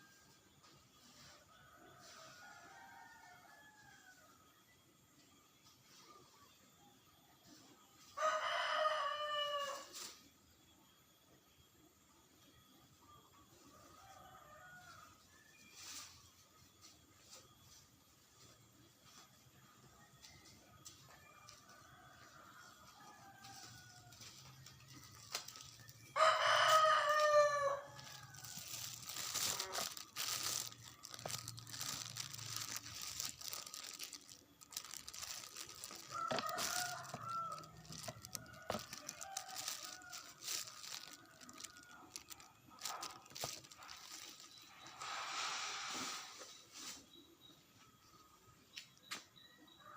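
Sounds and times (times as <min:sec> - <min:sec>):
rustling: 0:23.4 - 0:47.1.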